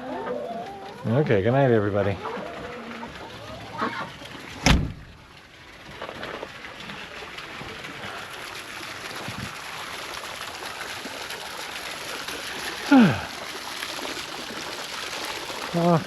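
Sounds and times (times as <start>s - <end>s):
coop door banging shut: 4.6s - 5.0s.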